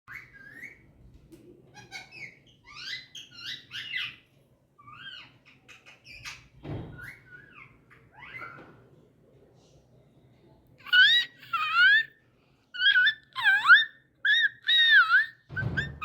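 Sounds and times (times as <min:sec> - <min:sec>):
parrot chirping and whistling: 0:12.8 - 0:16.0.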